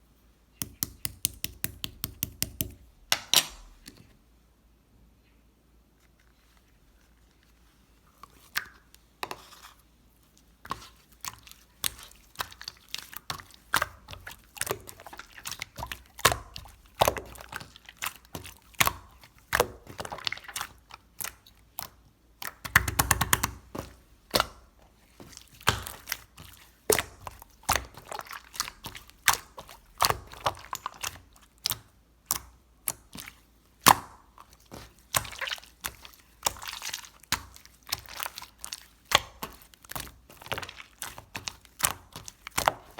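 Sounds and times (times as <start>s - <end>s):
slime squishing with wet pops: 0.6s - 4.0s, 8.1s - 42.9s
slime crackling: 10.7s - 42.9s.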